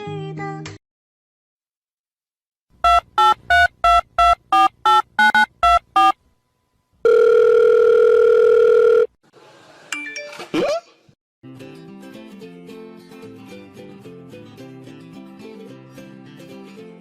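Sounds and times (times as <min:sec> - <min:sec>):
telephone keypad beeps: 0:02.8 - 0:06.2
steady telephone line tone: 0:07.0 - 0:09.1.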